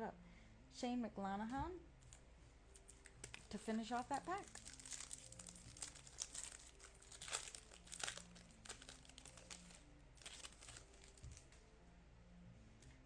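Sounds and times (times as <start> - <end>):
foil wrapper crinkling and tearing: 2.8 - 11.5.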